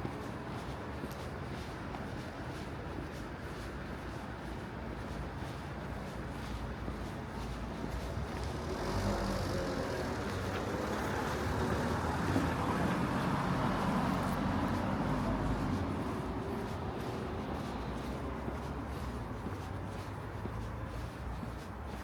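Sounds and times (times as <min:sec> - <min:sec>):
vehicle passing on road: 0:07.4 - 0:22.0.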